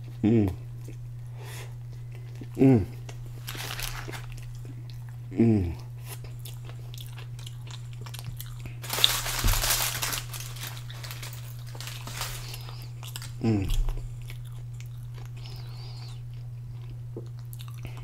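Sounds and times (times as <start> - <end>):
person chewing food: 0.0 - 9.2, 10.2 - 18.0
steady low hum: 0.0 - 18.0
falling voice hum: 0.2 - 0.7, 2.6 - 3.0, 5.3 - 5.9, 12.2 - 14.0.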